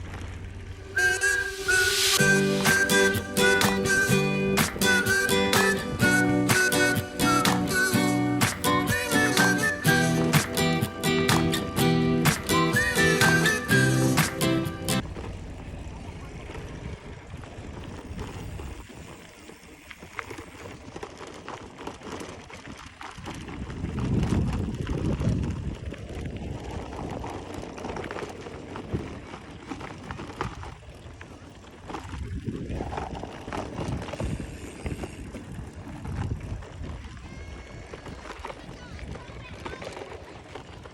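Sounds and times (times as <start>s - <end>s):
bicycle rumble: 0.0s - 40.9s
bicycle clicks and rattles: 15.0s - 40.9s.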